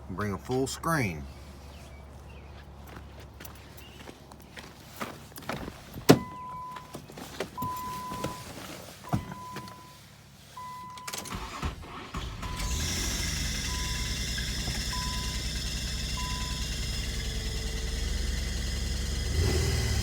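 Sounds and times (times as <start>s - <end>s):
car warning chime beeping: 6.1s - 8.5s, 9.1s - 10.0s, 10.6s - 16.8s
car engine starting and running: 10.9s - 20.0s.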